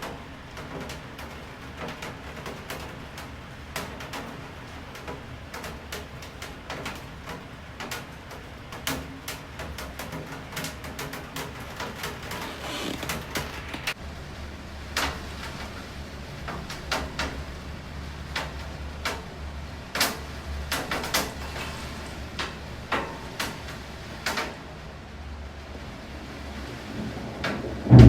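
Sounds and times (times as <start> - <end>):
raindrops tapping hard surface: 0.0 - 14.0, 14.8 - 24.9, 26.8 - 28.0
faint hiss of rain: 0.0 - 28.0
low rumble: 26.9 - 28.0.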